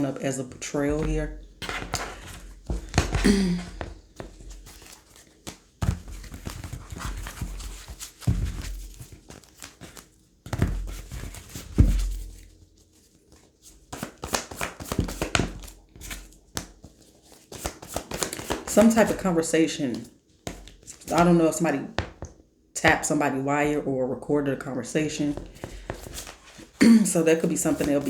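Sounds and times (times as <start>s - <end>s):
cards clicking: 17.5s - 19.2s
cards tapping on a table: 20.5s - 21.3s.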